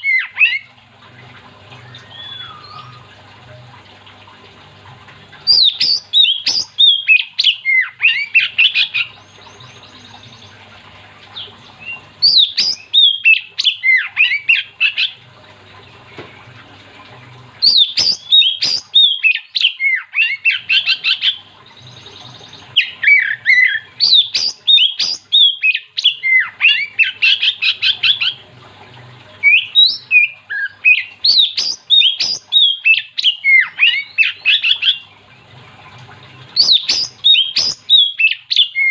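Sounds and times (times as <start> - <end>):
bird whistling and chattering: 1.8 - 3.1, 5.5 - 9.1, 11.4 - 15.2, 17.6 - 22.1, 22.8 - 28.4, 29.4 - 35.0, 36.6 - 38.9.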